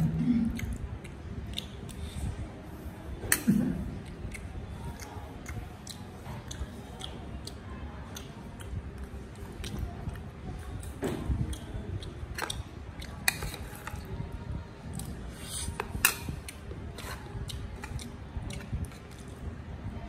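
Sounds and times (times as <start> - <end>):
chewing crunchy food: 4.0 - 14.1, 14.9 - 19.4.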